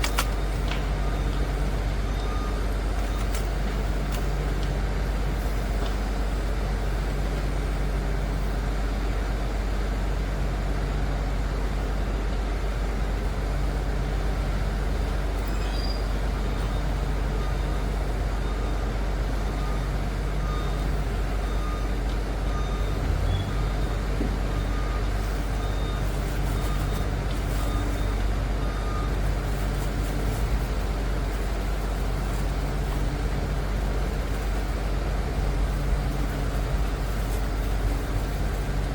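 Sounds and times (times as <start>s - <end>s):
diesel engine low rumble: 0.0s - 38.9s
reversing alarm beeps: 0.9s - 3.3s, 16.6s - 29.2s.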